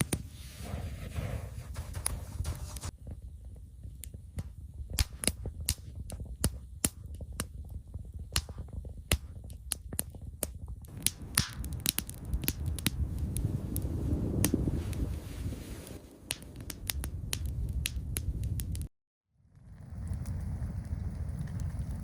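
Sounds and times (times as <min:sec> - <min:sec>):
burning wood popping: 0:00.0 - 0:18.9, 0:19.5 - 0:22.0
campfire crackling: 0:00.0 - 0:22.0
low rumble: 0:10.9 - 0:22.0.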